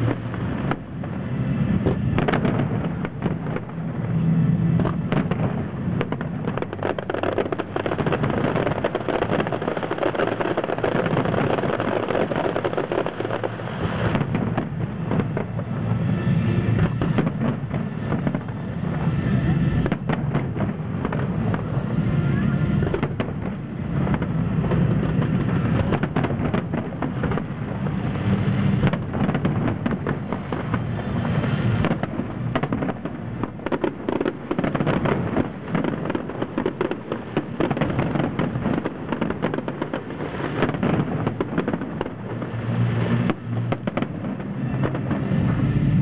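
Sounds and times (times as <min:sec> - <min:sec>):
firework shells bursting: 0:04.8 - 0:15.7.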